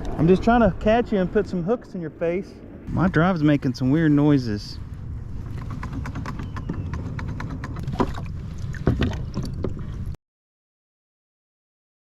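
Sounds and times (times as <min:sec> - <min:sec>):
kayak pedal drive rumble: 0:02.9 - 0:10.2.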